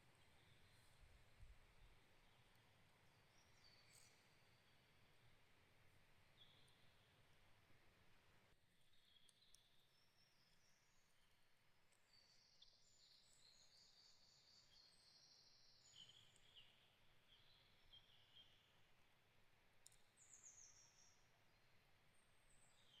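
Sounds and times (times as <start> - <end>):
birdsong chirps and trills: 0.0 - 5.0, 11.9 - 18.8.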